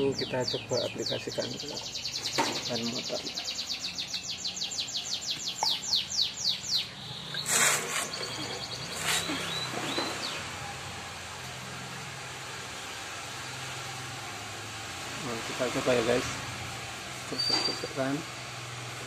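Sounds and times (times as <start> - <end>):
bird chirps: 0.0 - 10.6, 17.3 - 18.0
songbird singing whistled notes: 0.1 - 10.5, 17.3 - 18.0.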